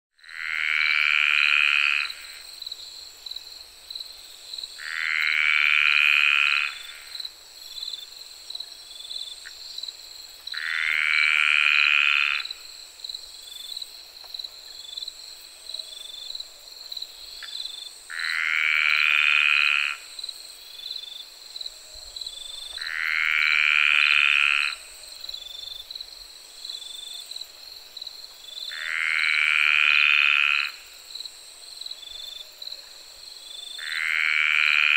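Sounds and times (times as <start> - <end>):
frog trilling calls: 0.2 - 2.4, 4.8 - 7.1, 10.5 - 12.6, 18.1 - 20.1, 22.7 - 24.9, 28.7 - 30.9, 33.8 - 34.9
crickets chirping: 0.2 - 34.9.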